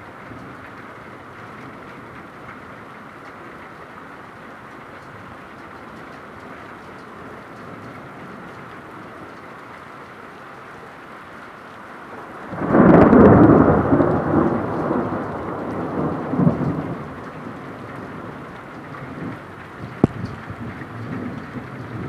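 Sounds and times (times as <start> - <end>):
steady rain: 0.0 - 22.0
thunderclap rolling rumble: 12.1 - 22.0.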